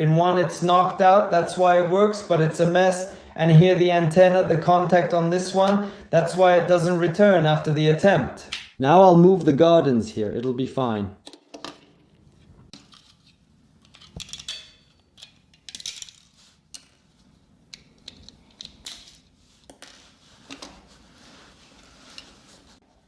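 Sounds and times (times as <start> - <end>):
small metal parts clicking and clinking: 13.8 - 16.9.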